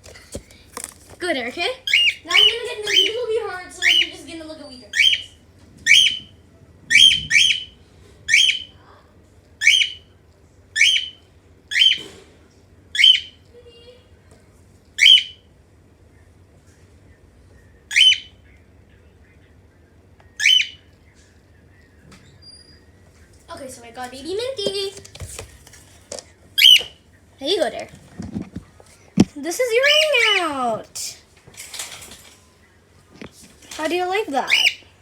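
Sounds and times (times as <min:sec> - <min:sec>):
cockatiel calling: 0:01.8 - 0:04.2, 0:04.9 - 0:06.3, 0:06.9 - 0:08.8, 0:09.6 - 0:10.1, 0:10.8 - 0:12.1, 0:12.9 - 0:13.4, 0:15.0 - 0:15.4, 0:17.9 - 0:18.4, 0:20.4 - 0:20.9, 0:26.6 - 0:27.0, 0:29.8 - 0:30.5, 0:34.4 - 0:34.9.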